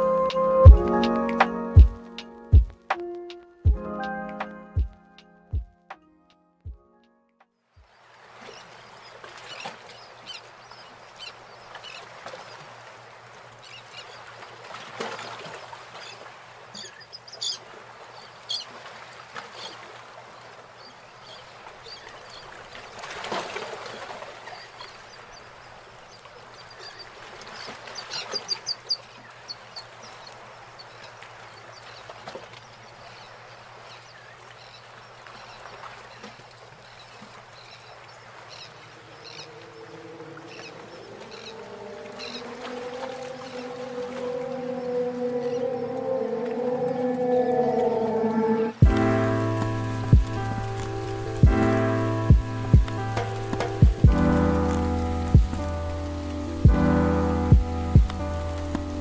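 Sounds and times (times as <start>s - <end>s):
birds chirping: 24.4s - 59.0s.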